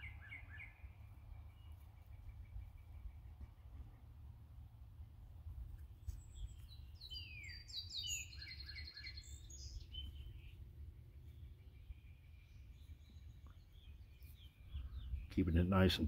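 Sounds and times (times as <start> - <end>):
songbird whistling and trilling: 0.0 - 0.9, 6.2 - 10.6.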